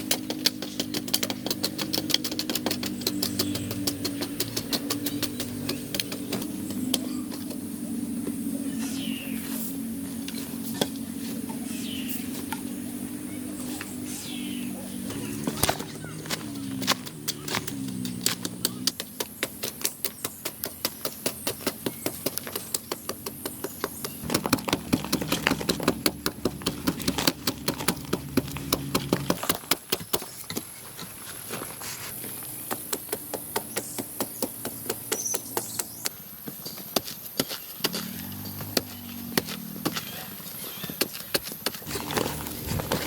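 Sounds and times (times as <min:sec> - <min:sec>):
hand tools knocking: 0:00.0 - 0:07.0.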